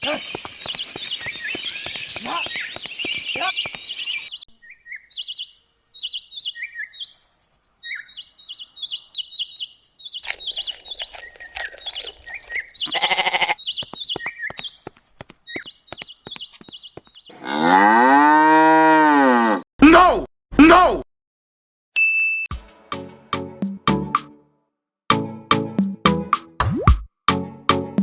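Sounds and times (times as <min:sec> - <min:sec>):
small birds chirping: 0:00.0 - 0:17.5
loud livestock bleat: 0:12.8 - 0:13.6.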